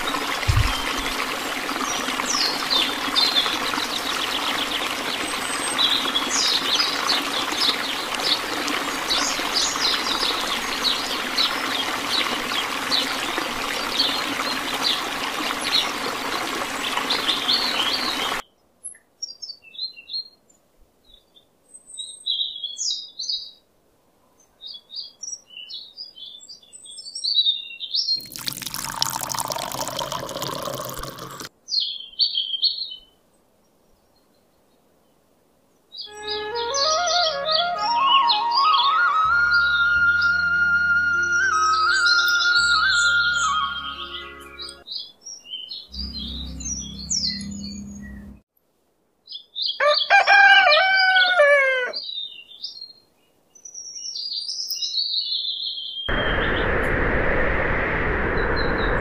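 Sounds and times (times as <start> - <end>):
water pouring from cup: 0.0 - 3.8, 28.2 - 31.5
water splashing from pump: 0.0 - 18.4, 28.2 - 31.5
birds chirping: 0.0 - 20.0, 36.0 - 48.4.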